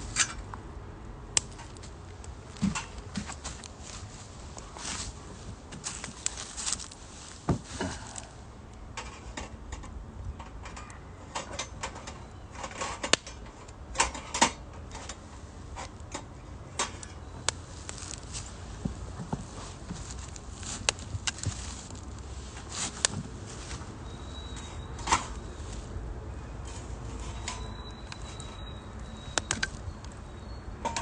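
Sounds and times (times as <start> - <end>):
wood fire crackling and popping: 1.3 - 8.4, 14.8 - 24.0, 29.4 - 30.2.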